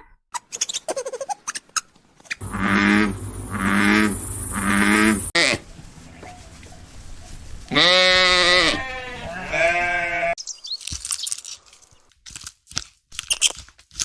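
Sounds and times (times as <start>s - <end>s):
farm animal bleating: 2.4s - 6.4s, 7.7s - 10.4s
crunching clicks: 10.7s - 14.0s.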